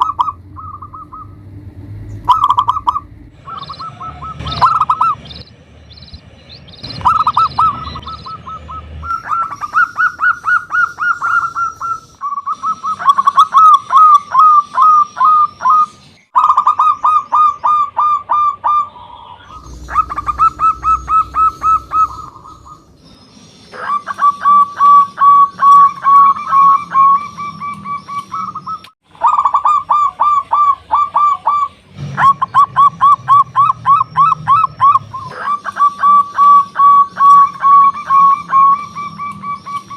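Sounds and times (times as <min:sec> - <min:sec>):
dove cooing in fast runs: 0:00.0 - 0:01.3, 0:02.3 - 0:05.4.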